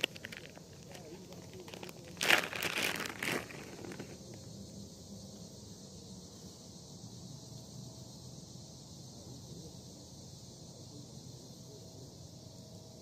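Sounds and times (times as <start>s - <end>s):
crinkling handling rustle: 0.0s - 4.2s
high insect drone: 0.0s - 13.0s.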